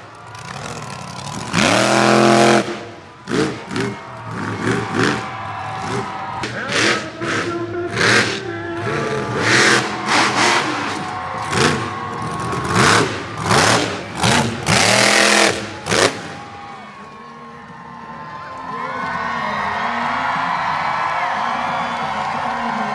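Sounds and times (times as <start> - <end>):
truck engine revving: 0.0 - 16.8.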